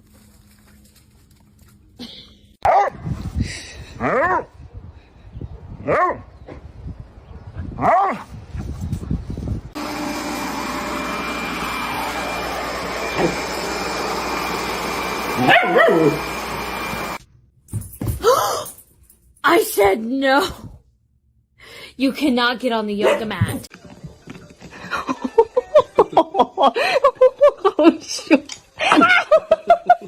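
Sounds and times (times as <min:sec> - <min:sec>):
dog barking: 0:02.6 - 0:03.0, 0:05.5 - 0:06.3, 0:15.4 - 0:16.2, 0:23.0 - 0:23.3
whooshing motor: 0:09.8 - 0:17.2.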